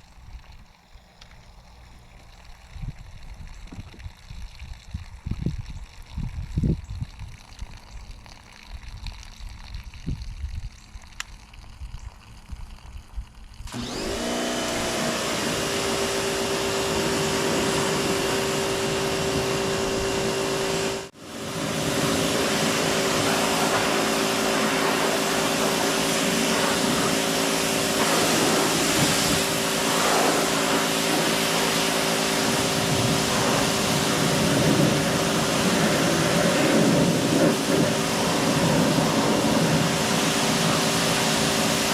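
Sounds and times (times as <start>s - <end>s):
water trickling and splashing: 0.1s - 13.8s
pressure washer spraying: 13.7s - 41.9s.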